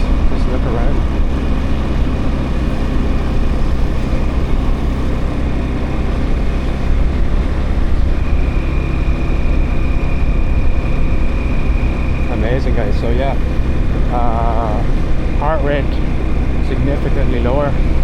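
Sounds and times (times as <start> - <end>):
motorbike engine drone: 0.0 - 18.0.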